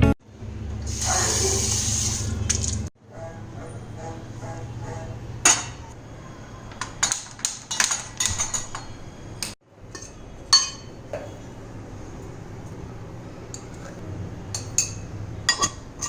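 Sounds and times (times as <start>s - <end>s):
dishes and cutlery clattering: 6.8s - 9.0s, 14.6s - 16.0s.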